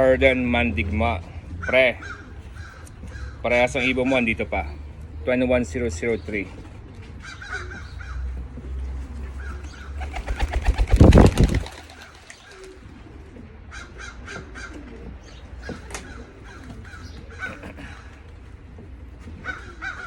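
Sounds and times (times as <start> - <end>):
pigeons cooing: 1.3 - 20.0
wings fluttering: 9.4 - 13.2.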